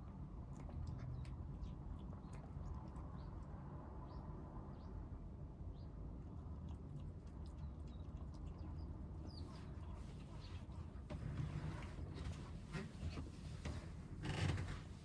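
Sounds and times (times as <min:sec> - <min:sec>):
kittens chewing clicks: 0:00.2 - 0:03.5, 0:06.4 - 0:10.4.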